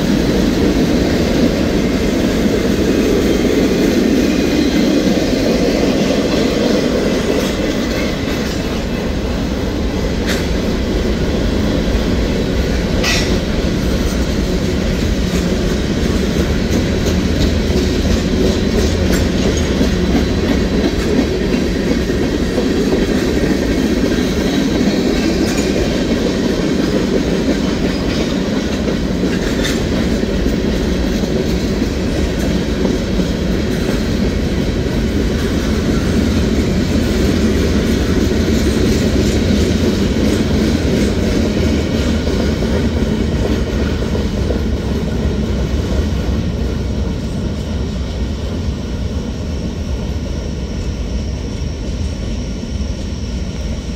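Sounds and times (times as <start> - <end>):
freight train wheels rumbling: 0.0 - 53.9.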